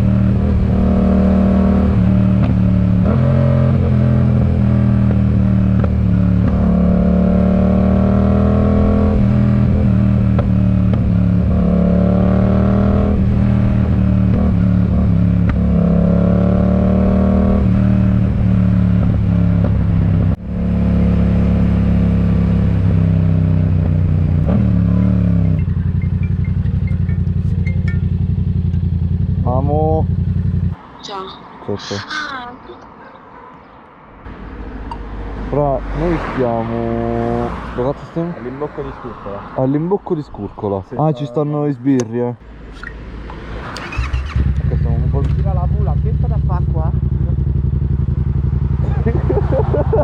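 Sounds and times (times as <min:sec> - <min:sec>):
motorcycle engine accelerating: 0:00.0 - 0:30.8, 0:34.3 - 0:39.4, 0:42.8 - 0:50.0
motorcycle engine idling: 0:25.4 - 0:30.8, 0:43.8 - 0:50.0.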